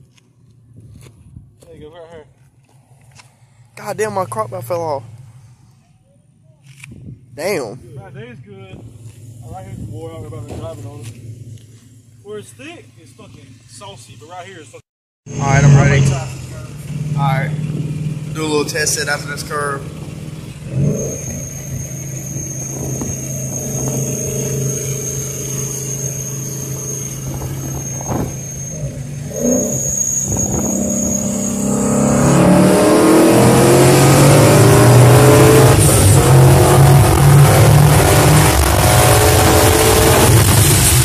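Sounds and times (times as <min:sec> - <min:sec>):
car engine accelerating hard: 0:15.3 - 0:41.0.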